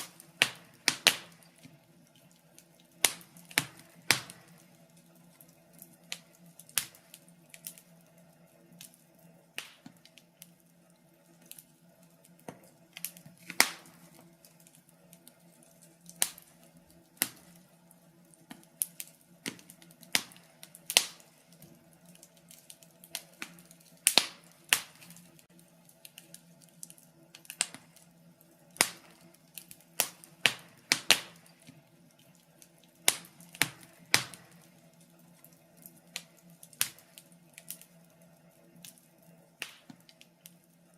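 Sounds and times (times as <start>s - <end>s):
faint steady hum: 0.0s - 40.9s
wood fire crackling: 0.0s - 40.9s.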